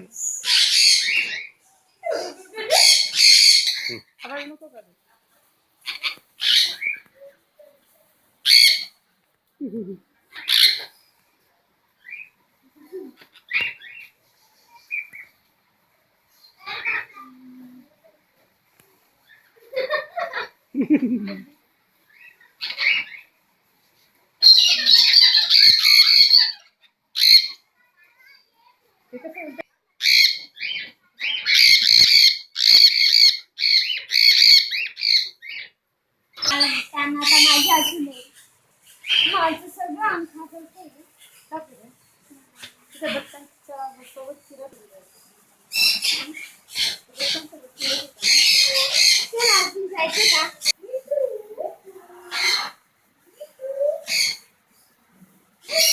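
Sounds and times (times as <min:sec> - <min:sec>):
parrots squawking: 0:00.0 - 0:04.6, 0:05.8 - 0:07.8, 0:08.4 - 0:09.0, 0:10.3 - 0:11.0, 0:12.9 - 0:14.1, 0:16.6 - 0:17.4, 0:22.1 - 0:23.3, 0:24.4 - 0:27.6, 0:30.0 - 0:52.8, 0:53.4 - 0:54.5, 0:55.6 - 0:55.9.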